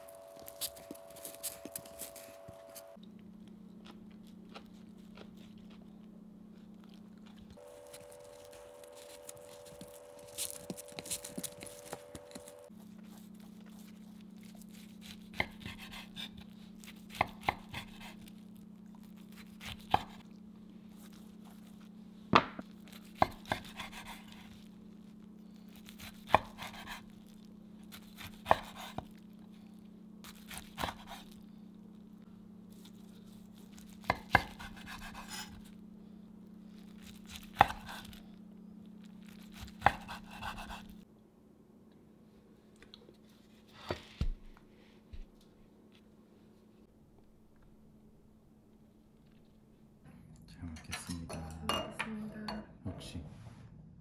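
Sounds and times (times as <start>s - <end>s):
bamboo mat rustling: 0.0s - 3.0s
steady low hum: 0.0s - 54.0s
knife rasping through food: 7.6s - 18.3s, 23.0s - 24.6s, 25.8s - 27.1s, 27.9s - 29.2s, 30.3s - 31.4s, 33.6s - 35.6s, 39.3s - 41.0s.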